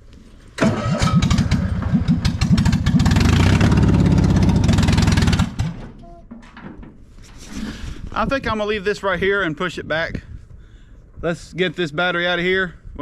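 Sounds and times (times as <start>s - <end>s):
cold engine running unevenly: 0.6s - 5.6s.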